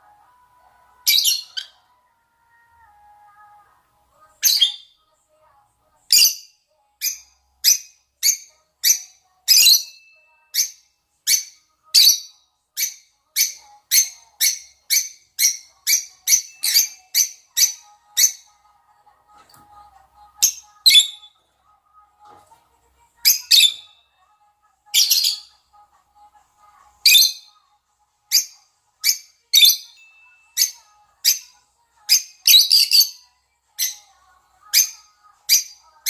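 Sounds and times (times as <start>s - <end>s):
lovebirds giving shrill high calls: 10.6s - 18.5s, 20.4s - 21.3s, 23.3s - 24.0s, 32.1s - 33.2s.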